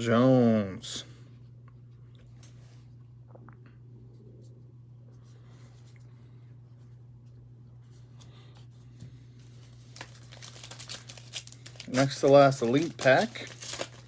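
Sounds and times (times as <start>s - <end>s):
steady low hum: 0.0s - 14.0s
trading cards being handled: 9.4s - 14.0s.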